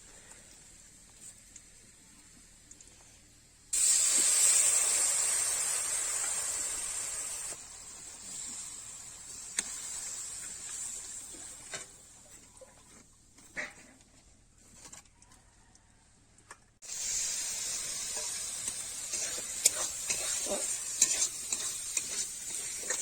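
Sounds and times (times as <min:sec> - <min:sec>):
food sizzling in hot pan: 0:03.8 - 0:12.1, 0:16.8 - 0:23.0.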